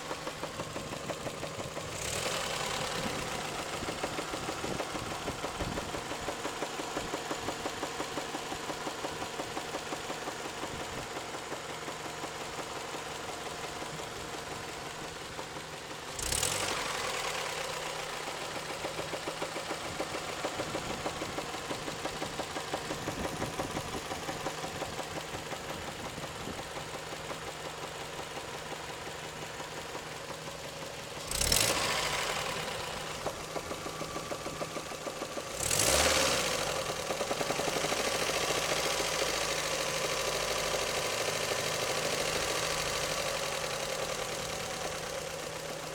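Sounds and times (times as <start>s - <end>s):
car engine running: 0.0s - 45.9s
rapid engine knocking: 0.0s - 45.9s.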